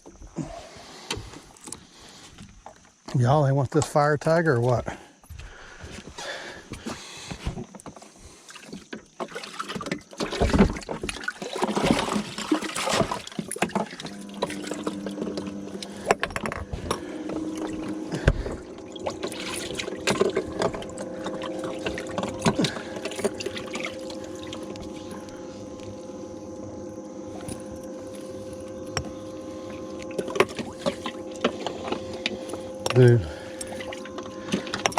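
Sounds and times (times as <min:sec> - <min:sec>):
water splashing: 0:08.4 - 0:26.7, 0:29.3 - 0:34.9
mechanical hum with held tones: 0:11.5 - 0:34.9.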